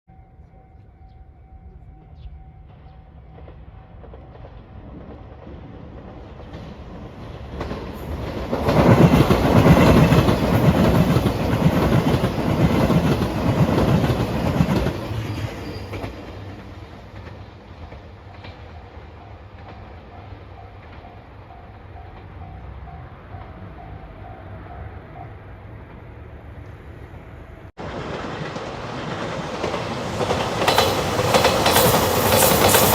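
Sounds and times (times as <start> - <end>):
level crossing warning bell: 0.1 - 4.5
train wheels clattering on rails: 2.6 - 22.6, 27.8 - 32.9.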